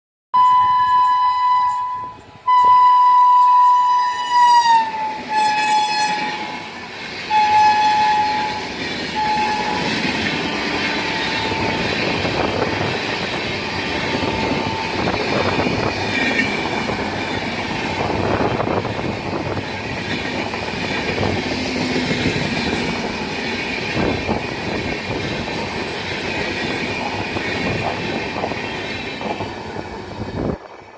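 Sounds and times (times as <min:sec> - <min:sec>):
locomotive horn blasts: 0:00.4 - 0:12.0
train coaches rumbling: 0:00.4 - 0:30.9
train wheels clickety-clack: 0:00.4 - 0:30.9.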